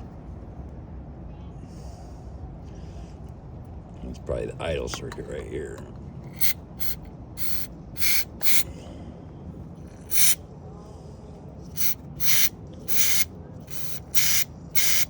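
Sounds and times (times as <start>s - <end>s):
aerosol spray hissing: 6.3s - 8.7s, 10.0s - 10.4s, 11.7s - 15.0s.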